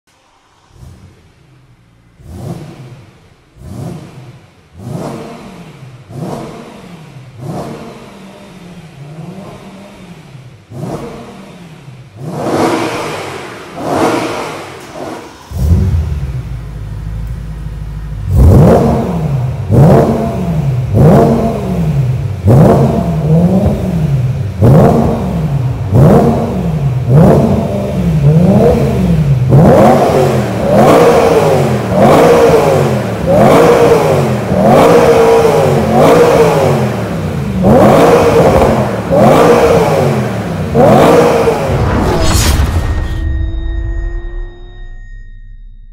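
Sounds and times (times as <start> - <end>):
car engine idling and revving: 0.1 - 45.2.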